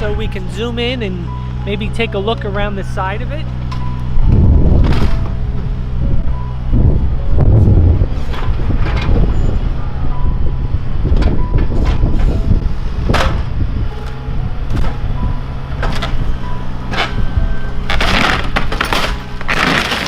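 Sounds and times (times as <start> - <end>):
demolition machine engine drone: 0.0 - 20.0
wood and metal cracking: 17.8 - 20.0.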